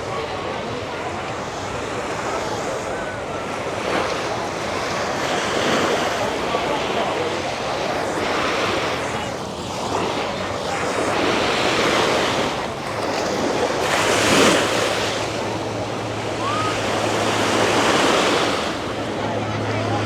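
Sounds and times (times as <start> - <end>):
ocean surf breaking on beach: 0.0 - 20.0.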